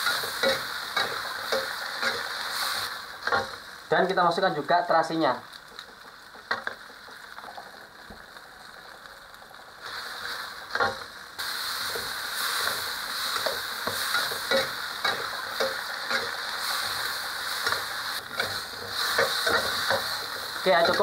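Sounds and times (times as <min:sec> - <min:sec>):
food sizzling in hot oil: 0:00.0 - 0:21.0
metal spatula scraping a wok: 0:12.6 - 0:21.0.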